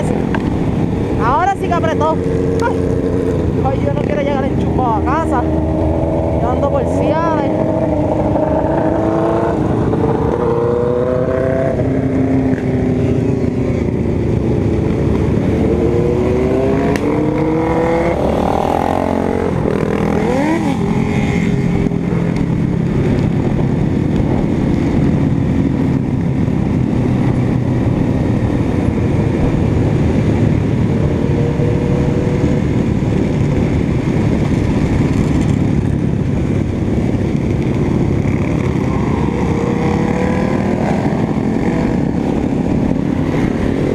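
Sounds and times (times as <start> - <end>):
constant rushing noise: 0.0 - 43.9
motorcycle engine running: 0.0 - 43.9.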